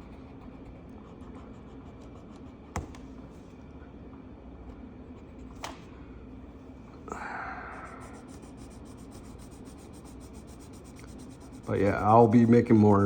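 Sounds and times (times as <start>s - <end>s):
pencil rubbing on paper: 8.0s - 13.0s.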